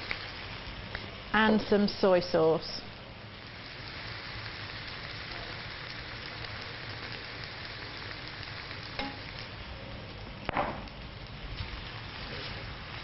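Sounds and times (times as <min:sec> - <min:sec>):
stir fry sizzling in a wok: 0:00.0 - 0:13.0.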